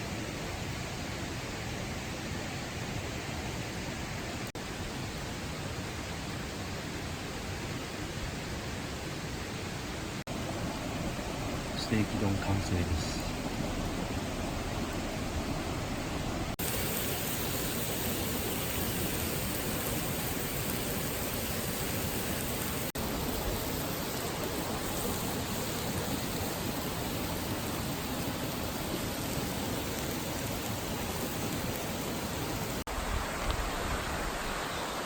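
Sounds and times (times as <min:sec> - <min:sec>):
flowing water rushing: 0:04.6 - 0:35.0.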